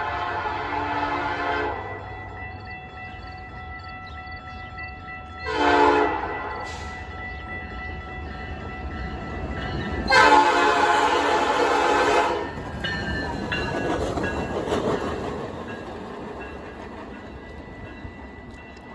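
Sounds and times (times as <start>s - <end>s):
train horn blast: 0.0s - 1.9s, 5.4s - 6.9s, 10.1s - 12.5s
train wheels rumbling and clattering: 6.0s - 18.9s.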